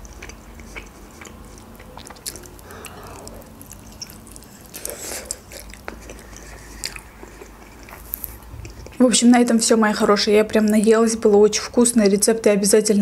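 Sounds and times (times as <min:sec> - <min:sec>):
chewing and biting food: 0:00.0 - 0:09.0.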